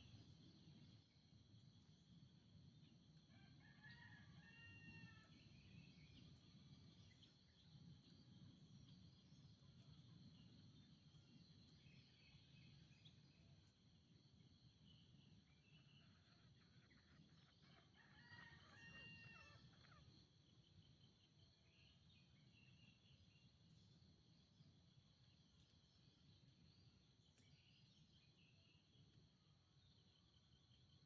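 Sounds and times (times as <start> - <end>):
faint junglefowl crow: 3.2 - 5.8, 15.6 - 20.3.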